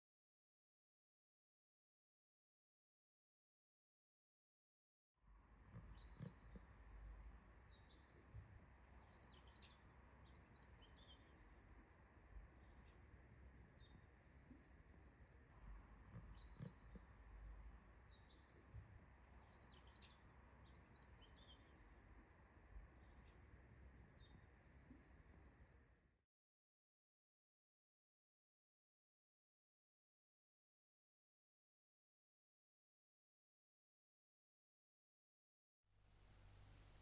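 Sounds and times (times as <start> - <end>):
low steady rumble: 5.3 - 24.8
small birds chirping: 5.5 - 26.2.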